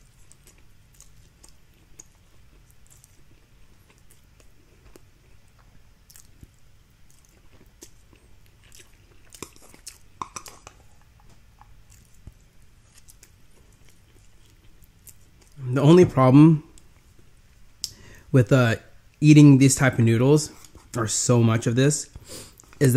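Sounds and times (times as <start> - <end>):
chewing dry noodles: 0.0 - 15.6.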